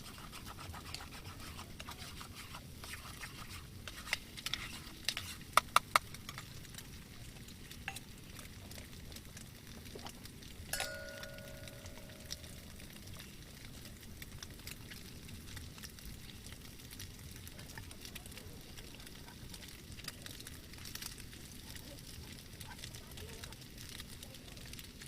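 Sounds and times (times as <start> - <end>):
steady background hiss: 10.6 - 14.4
metal utensils clinking and scraping: 10.7 - 12.6.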